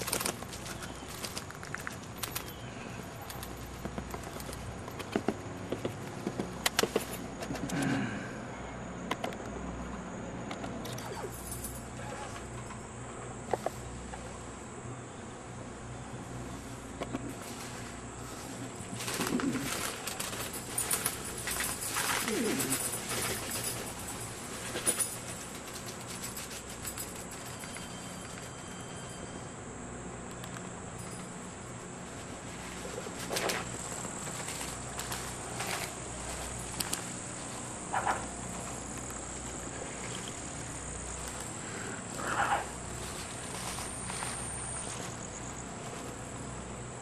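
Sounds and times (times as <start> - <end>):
rustling: 0.0 - 7.7, 16.6 - 28.6, 31.0 - 46.6
high-pitched insect chorus: 10.8 - 47.0
short loud insect calls: 14.9 - 46.8
bird cooing: 18.9 - 23.5
scattered clicks: 30.2 - 30.8.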